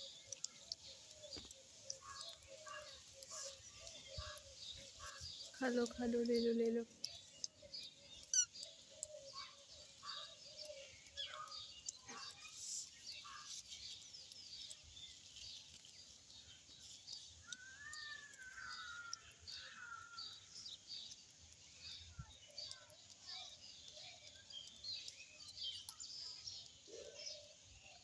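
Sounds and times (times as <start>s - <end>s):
lower bird calls: 0.0s - 6.4s, 7.0s - 13.6s, 17.4s - 20.6s
long arched bird call: 0.0s - 13.6s, 16.8s - 20.6s
birds chirping and twittering: 0.0s - 28.0s.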